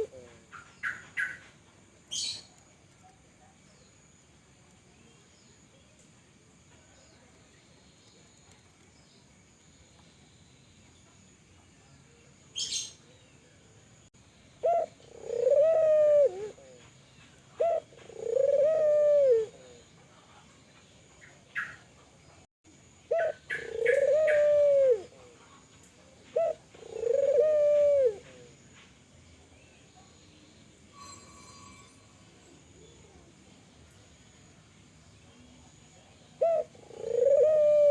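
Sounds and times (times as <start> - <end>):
dove cooing: 0.0 - 1.4, 14.6 - 16.9, 17.6 - 19.9, 23.1 - 25.4, 26.3 - 28.6, 36.4 - 37.9.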